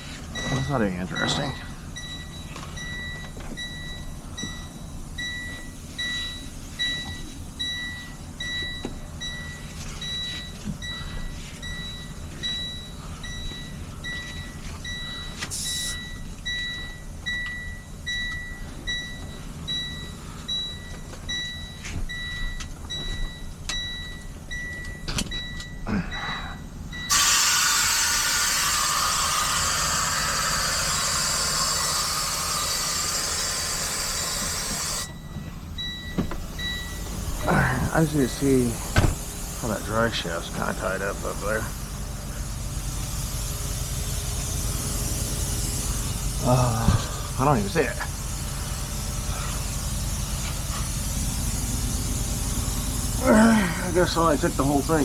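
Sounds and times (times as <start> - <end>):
loud hiss of air: 15.5 - 16.0, 27.1 - 55.0
truck engine idling: 26.6 - 55.0
electronic warning beeper chirping: 27.0 - 37.1.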